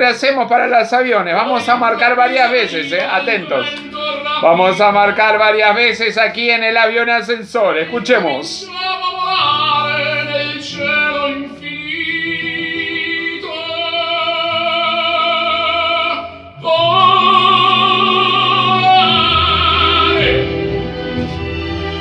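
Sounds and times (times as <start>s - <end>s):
operatic singing with vibrato: 0.0s - 22.0s
instrumental accompaniment: 16.5s - 22.0s.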